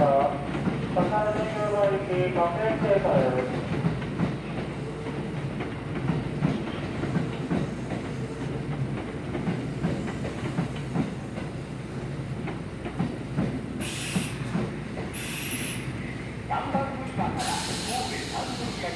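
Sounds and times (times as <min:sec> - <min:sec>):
train wheels clacking over rails: 0:00.0 - 0:02.0, 0:02.6 - 0:18.9
electric train rumbling: 0:00.0 - 0:18.9
air hiss: 0:13.8 - 0:14.4, 0:15.2 - 0:15.9, 0:17.4 - 0:18.9.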